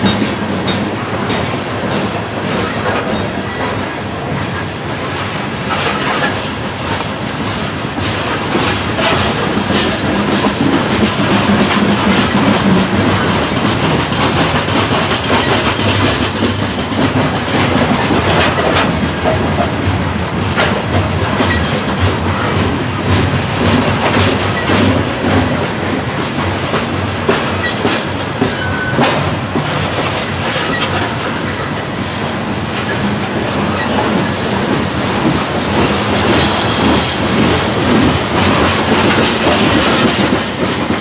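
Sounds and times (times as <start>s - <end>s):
freight train rolling past: 0.0s - 41.0s
wheels clacking over rail joints: 0.0s - 41.0s.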